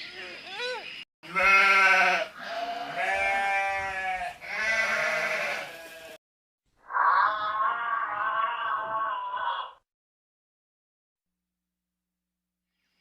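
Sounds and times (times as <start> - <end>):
long animal calls: 6.8 - 9.8.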